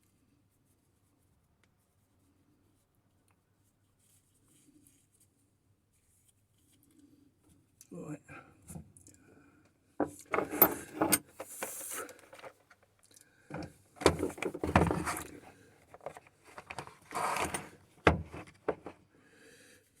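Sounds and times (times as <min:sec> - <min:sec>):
clicks and rattles of tools: 0:10.0 - 0:19.0.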